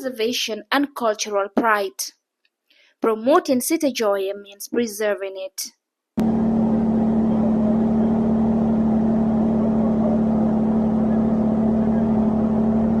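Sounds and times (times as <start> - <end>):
motorboat engine droning: 6.2 - 13.0.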